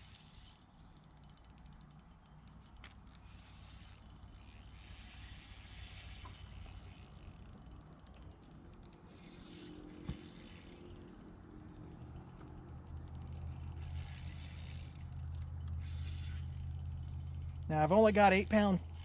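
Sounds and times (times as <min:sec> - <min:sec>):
electric trolling motor humming: 0:00.0 - 0:19.0.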